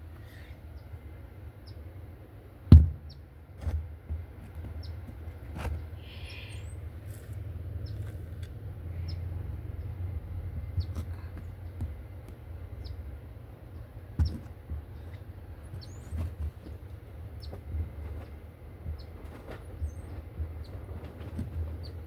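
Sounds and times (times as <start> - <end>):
sharp knocks: 2.7 - 3.8
high bird chirps: 6.0 - 6.8.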